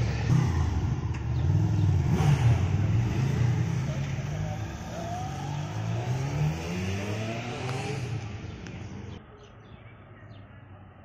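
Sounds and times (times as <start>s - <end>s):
car engine revving: 0.0s - 9.2s
street background: 0.0s - 11.0s
bird chirps: 8.4s - 10.8s.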